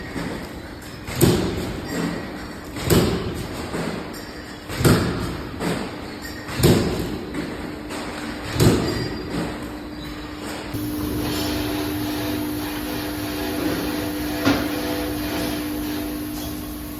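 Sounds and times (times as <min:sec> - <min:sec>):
steady low hum: 0:10.8 - 0:16.9.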